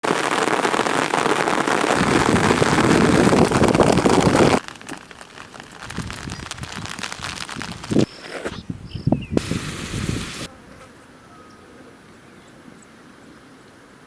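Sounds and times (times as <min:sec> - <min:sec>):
heavy rain pouring: 0:00.0 - 0:08.1, 0:09.4 - 0:10.5.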